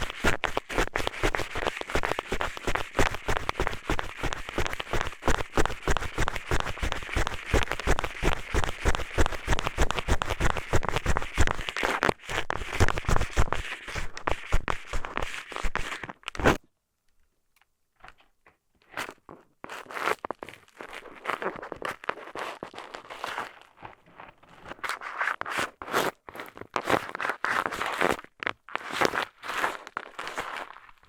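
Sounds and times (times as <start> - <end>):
eyeglasses scratching in ear canal: 0.0 - 16.6.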